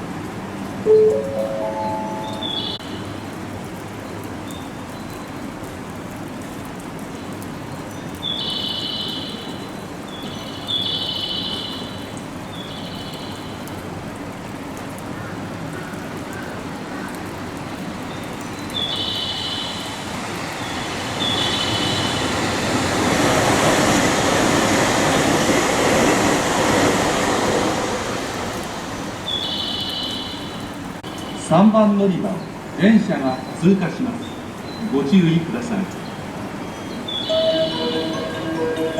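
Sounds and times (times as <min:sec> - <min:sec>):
electric train rumbling past: 0:00.8 - 0:03.1, 0:18.9 - 0:31.0, 0:36.2 - 0:38.9
short high tones: 0:00.9 - 0:02.8, 0:37.3 - 0:38.9.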